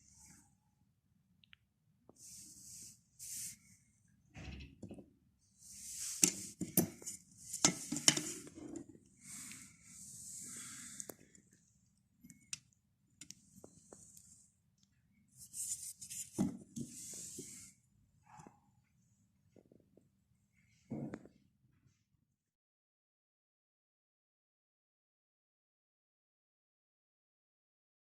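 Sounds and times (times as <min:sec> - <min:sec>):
short hissing scrapes: 0:02.2 - 0:03.8, 0:05.6 - 0:06.6, 0:16.8 - 0:17.8.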